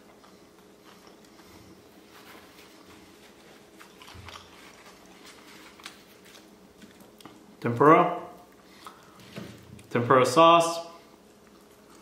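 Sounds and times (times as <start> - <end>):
person chewing crunchy food: 2.8 - 7.6.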